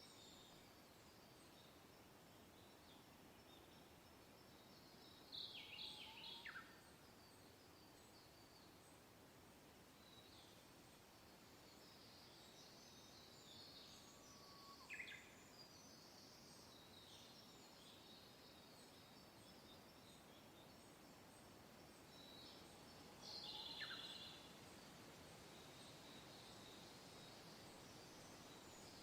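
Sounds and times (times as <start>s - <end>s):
small birds chirping and trilling: 11.6s - 29.0s
wind hiss: 14.9s - 29.0s.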